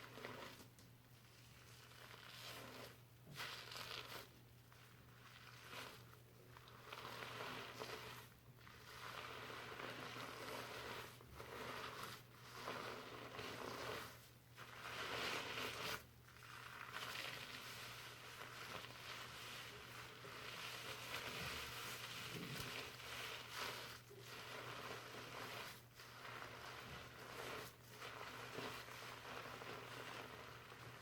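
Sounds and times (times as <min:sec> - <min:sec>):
fingers lathering shampoo in hair: 0:05.1 - 0:31.0.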